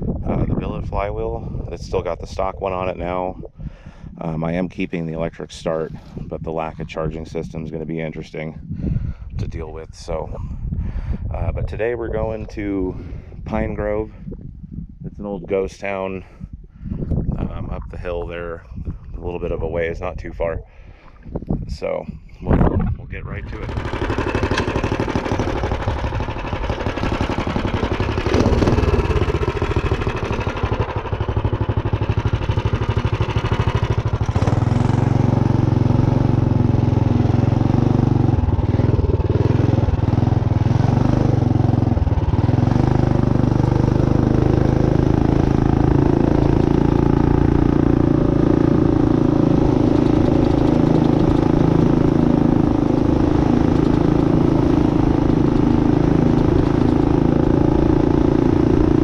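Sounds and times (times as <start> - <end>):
minibike engine running: 23.4 - 59.0.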